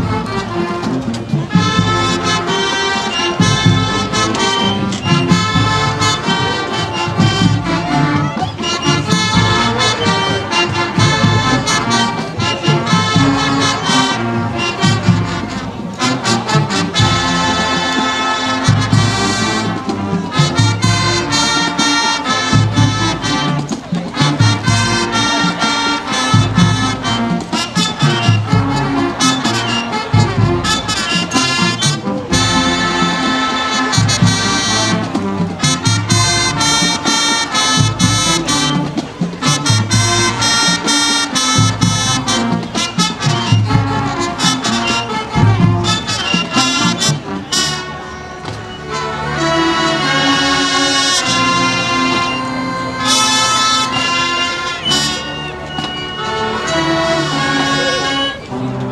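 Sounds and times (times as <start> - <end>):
drums: 0.0 - 58.9
loud brass: 0.0 - 58.9
marching band playing: 0.0 - 58.9.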